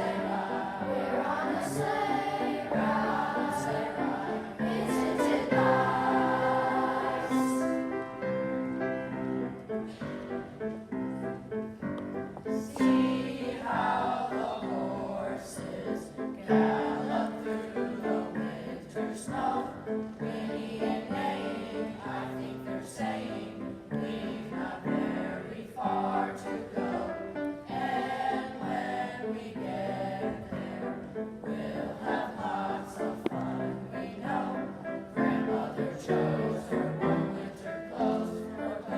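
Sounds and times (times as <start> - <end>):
children's choir singing: 0.0 - 10.7, 12.2 - 38.9
musical accompaniment: 0.0 - 38.9.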